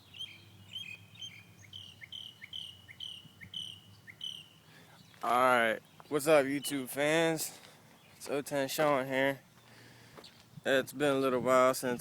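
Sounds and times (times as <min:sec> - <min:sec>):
bird singing whistled notes: 0:00.0 - 0:05.2.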